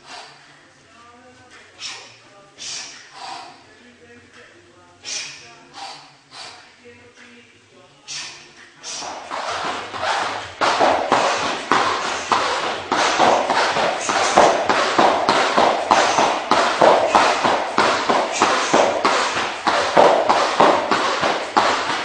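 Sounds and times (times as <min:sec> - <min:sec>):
sharp slaps of workout strikes: 0:08.1 - 0:22.0.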